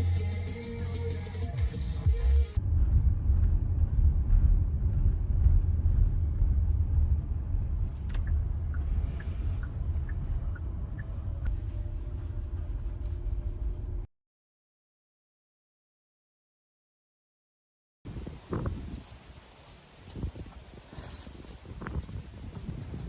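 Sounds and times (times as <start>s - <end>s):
low rumble of moving car: 2.1s - 14.1s, 18.1s - 23.0s.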